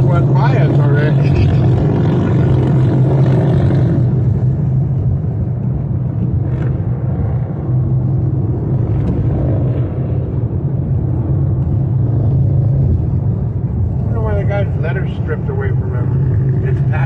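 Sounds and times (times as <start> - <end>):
car driving rumble inside cabin: 0.0 - 17.0.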